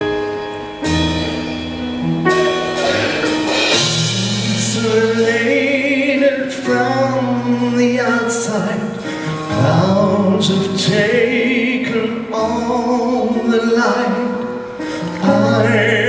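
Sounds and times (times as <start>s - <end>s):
voices singing in harmony: 2.2s - 7.5s.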